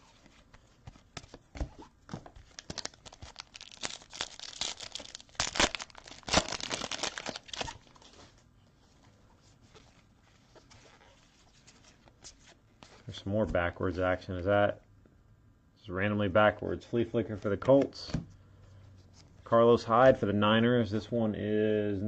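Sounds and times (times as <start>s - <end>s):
card pack wrapper tearing: 2.5s - 8.1s.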